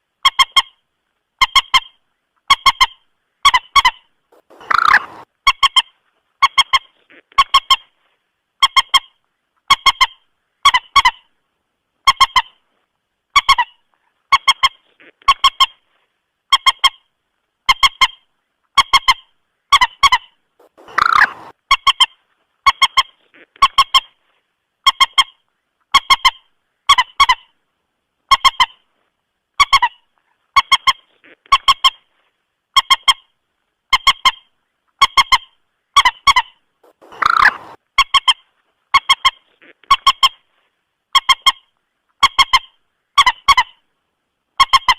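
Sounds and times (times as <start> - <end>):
moorhen doubled call: 3.5 - 5.2, 20.1 - 21.5, 36.9 - 37.8.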